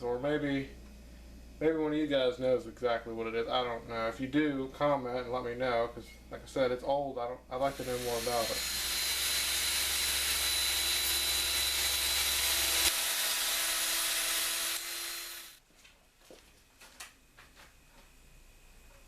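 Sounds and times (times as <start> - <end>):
small power tool whining: 7.7 - 15.6.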